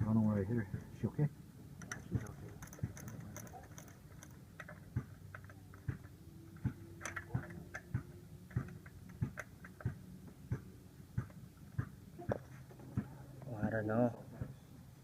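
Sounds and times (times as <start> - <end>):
steady clicks: 1.8 - 12.0.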